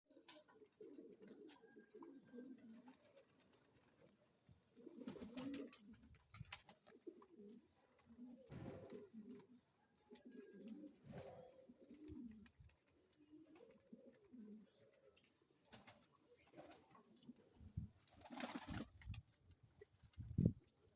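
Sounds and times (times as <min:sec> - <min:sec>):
pigeons cooing: 0:00.2 - 0:19.0.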